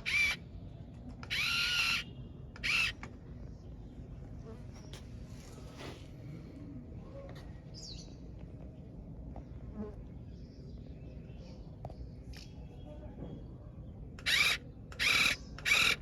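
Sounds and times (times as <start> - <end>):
small electric motor whirring: 0.0 - 0.4, 1.2 - 2.0, 2.6 - 3.0, 14.2 - 16.0.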